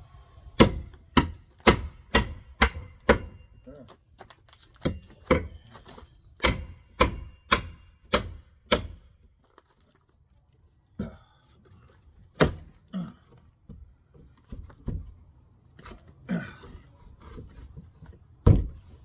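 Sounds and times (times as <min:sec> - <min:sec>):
hammer striking wood: 0:00.6 - 0:03.4, 0:04.8 - 0:05.6, 0:06.4 - 0:09.0.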